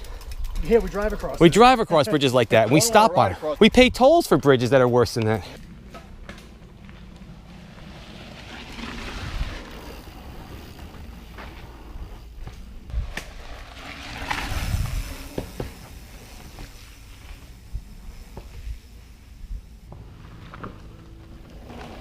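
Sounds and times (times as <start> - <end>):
bike knocking and rattling: 0.0 - 1.7, 4.8 - 22.0
bike tyre rumble: 4.4 - 22.0
wind rushing over microphone: 7.4 - 10.1, 12.8 - 15.8.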